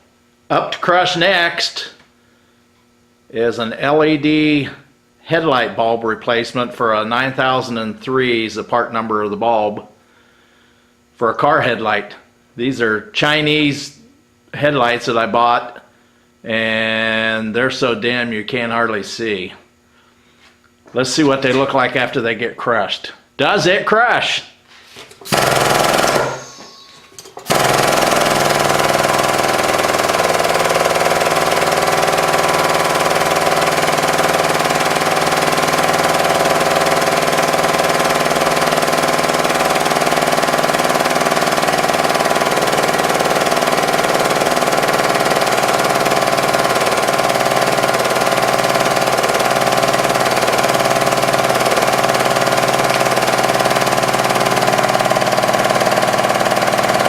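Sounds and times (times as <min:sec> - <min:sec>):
hydraulic pump motor humming: 0:25.0 - 0:57.0.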